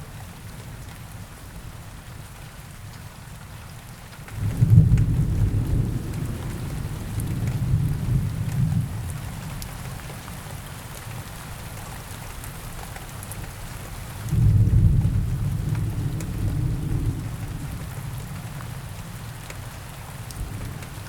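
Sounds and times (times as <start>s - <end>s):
steady rain falling: 0.0s - 21.0s
thunder rumbling: 4.5s - 9.3s, 14.3s - 18.8s, 20.3s - 21.0s.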